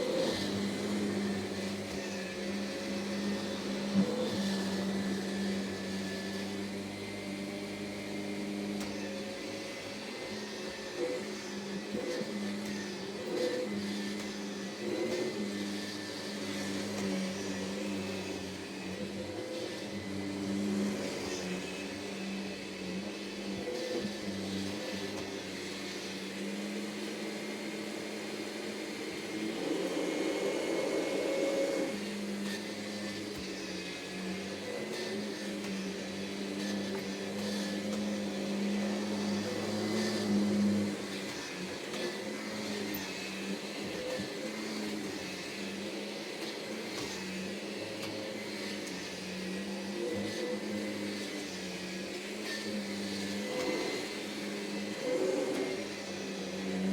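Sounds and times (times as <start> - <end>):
vacuum cleaner running: 0.0 - 56.9.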